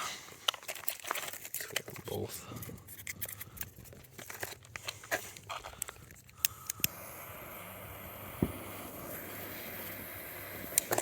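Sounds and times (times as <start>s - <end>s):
fireworks crackling and clicking: 3.0s - 11.0s
fireworks hissing: 6.7s - 11.0s.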